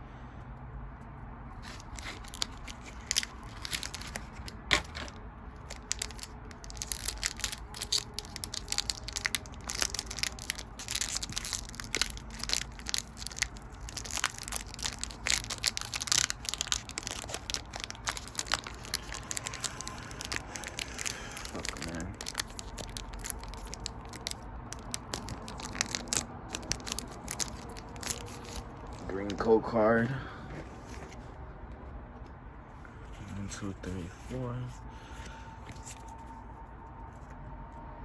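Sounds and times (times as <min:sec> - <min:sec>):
cards being handled: 0:01.6 - 0:29.4, 0:33.1 - 0:36.4
foil wrapper crinkling and tearing: 0:01.6 - 0:29.4.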